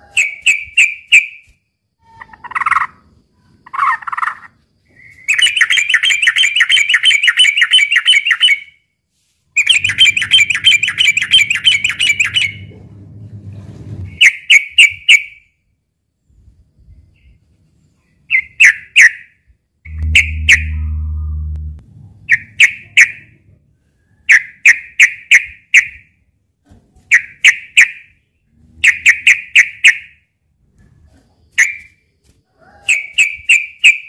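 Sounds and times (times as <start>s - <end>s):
bird loud sharp notes: 19.9s - 23.2s.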